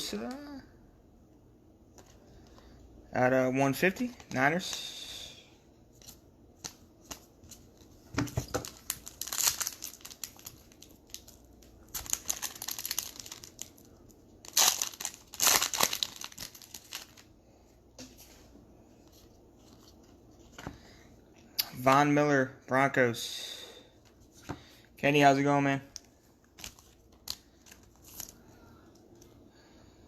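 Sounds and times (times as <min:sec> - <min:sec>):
card pack wrappers crinkling: 0:06.0 - 0:17.4, 0:25.9 - 0:28.4.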